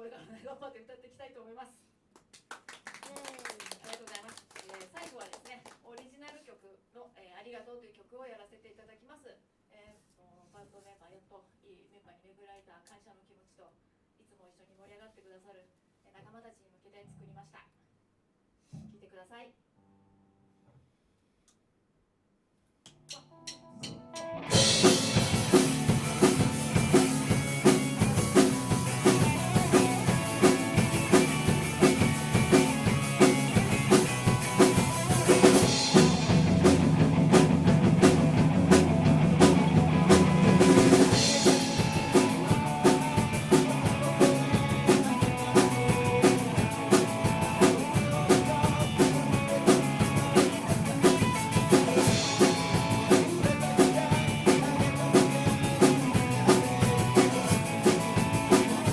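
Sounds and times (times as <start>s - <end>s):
drum kit steady beat: 23.1s - 58.9s
rock band playing live: 23.8s - 58.9s.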